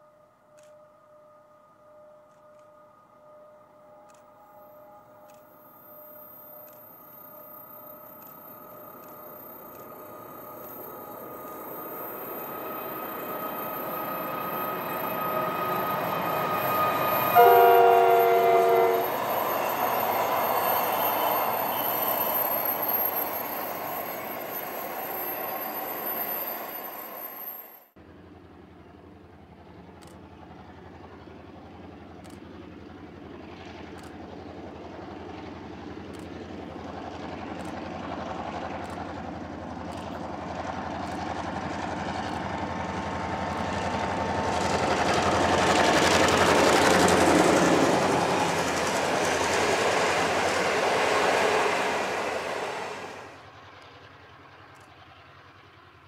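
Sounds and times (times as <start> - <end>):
diesel locomotive engine hum: 0.0 - 56.0
passenger train running past: 0.0 - 56.0
locomotive horn chord: 16.6 - 19.3.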